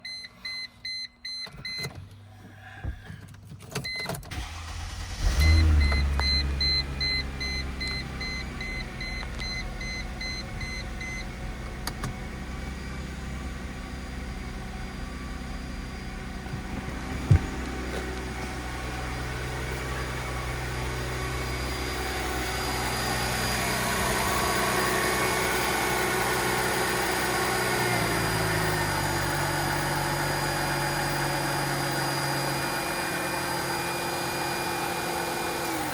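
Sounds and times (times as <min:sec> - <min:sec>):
car engine starting and idling: 0:00.0 - 0:35.9
electronic warning chime: 0:21.0 - 0:30.0.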